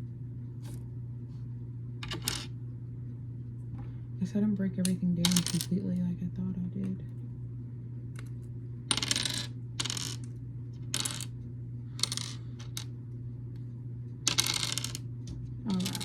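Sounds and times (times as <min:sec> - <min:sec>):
plastic bricks clattering: 0:15.7 - 0:16.0.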